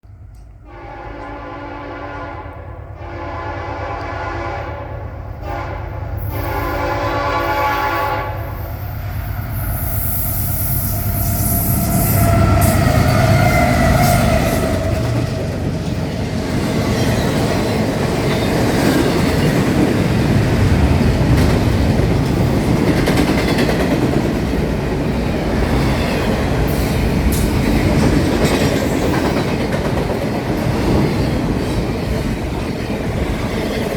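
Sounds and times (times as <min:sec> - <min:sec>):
train horn blasts: 0:00.6 - 0:08.9, 0:11.0 - 0:15.4
wheels clacking on rail joints: 0:12.3 - 0:33.9.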